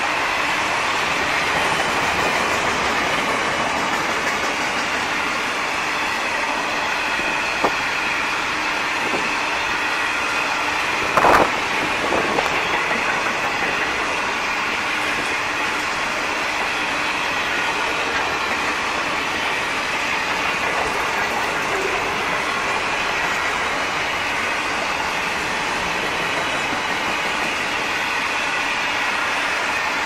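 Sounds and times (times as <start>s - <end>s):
train wheels rolling on rail: 0.0s - 30.0s.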